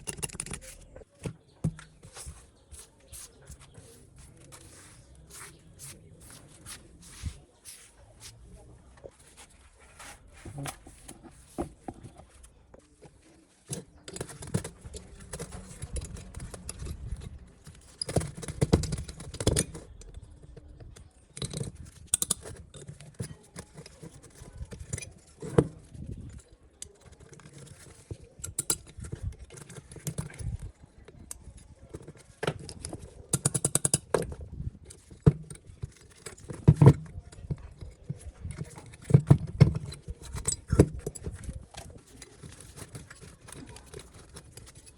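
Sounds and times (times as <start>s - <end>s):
hard objects clinking and knocking: 0.0s - 2.6s, 13.7s - 26.4s.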